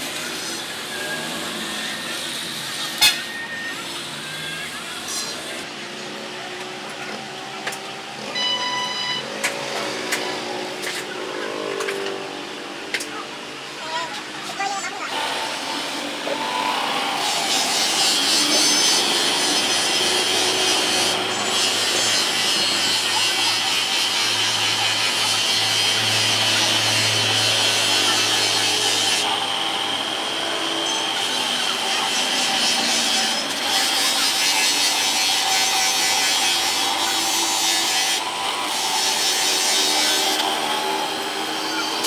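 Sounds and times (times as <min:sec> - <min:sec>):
power tool whining on plastic: 0:15.1 - 0:42.0.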